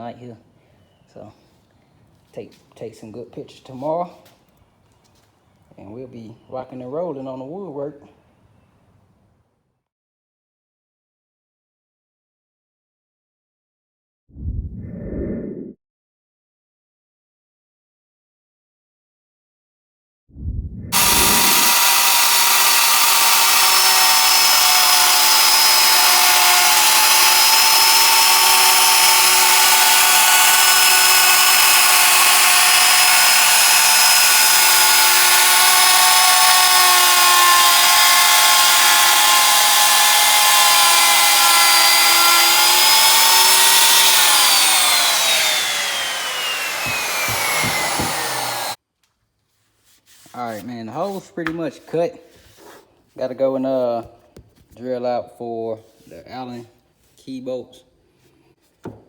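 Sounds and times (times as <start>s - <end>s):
wood router motor whine: 21.0s - 48.8s.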